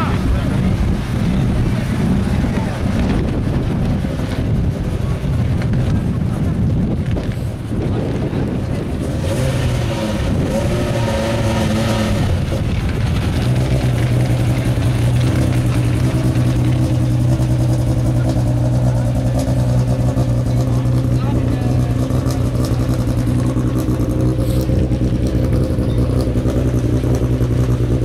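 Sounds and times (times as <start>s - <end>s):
people talking: 0.0s - 27.2s
car engine idling: 0.0s - 28.0s.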